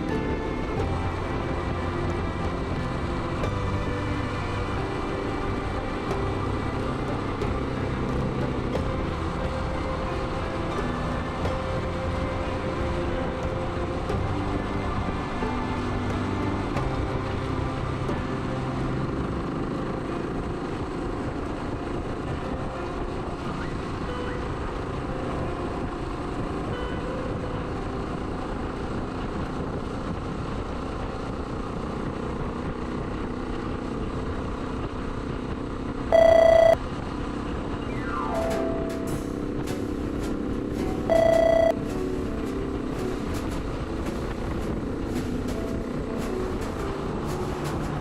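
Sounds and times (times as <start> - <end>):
short loud beep: 36.1 - 36.8, 41.1 - 41.8.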